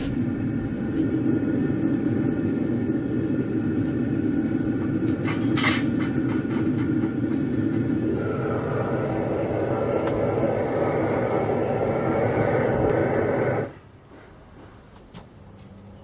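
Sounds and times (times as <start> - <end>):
gas burner roaring: 0.0 - 13.8.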